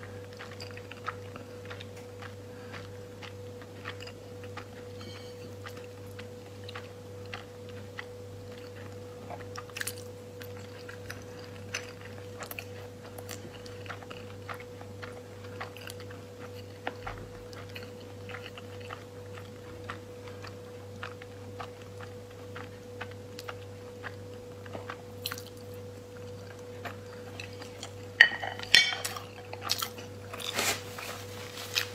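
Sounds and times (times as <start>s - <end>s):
chewing clicks: 0.0s - 4.9s
steady low hum: 0.0s - 31.9s.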